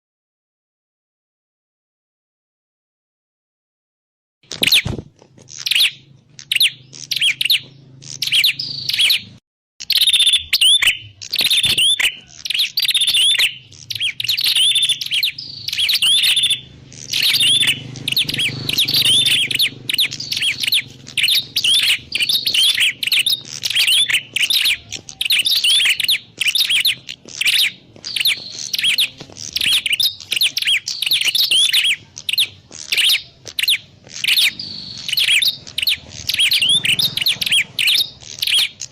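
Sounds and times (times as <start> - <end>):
bird chirps and trills: 4.5 - 38.9.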